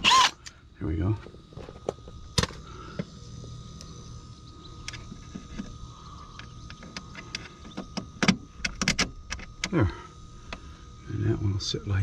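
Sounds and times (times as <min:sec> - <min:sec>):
electric drill drilling metal: 0:00.0 - 0:00.5.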